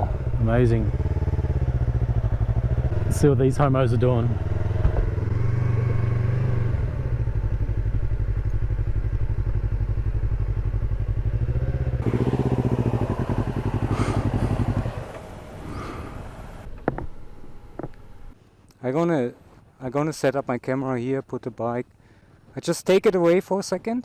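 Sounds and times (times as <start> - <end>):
motorcycle engine idling: 0.0 - 5.2, 6.8 - 18.4.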